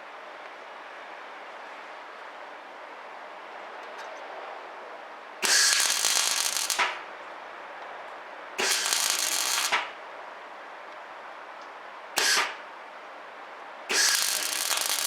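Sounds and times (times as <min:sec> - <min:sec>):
welder crackling and hissing: 0:05.4 - 0:07.0, 0:08.6 - 0:09.9, 0:12.2 - 0:12.6, 0:13.9 - 0:15.0.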